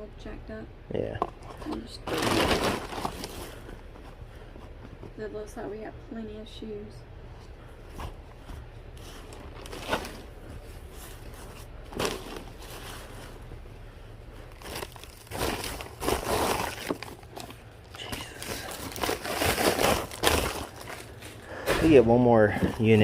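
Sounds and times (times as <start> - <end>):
packaging crinkling: 1.4 - 4.8, 8.9 - 13.5, 14.4 - 23.0.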